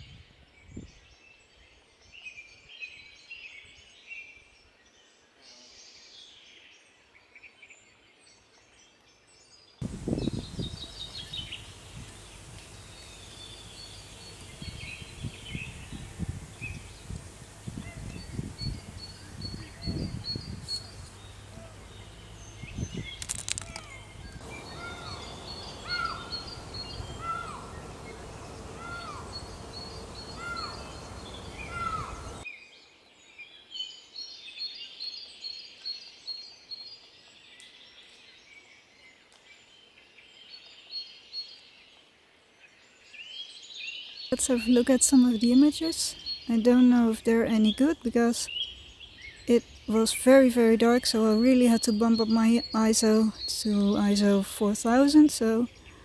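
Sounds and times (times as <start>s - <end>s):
small birds chirping: 9.8s - 32.4s, 44.3s - 56.0s
downward-sliding bird call: 10.0s - 32.4s.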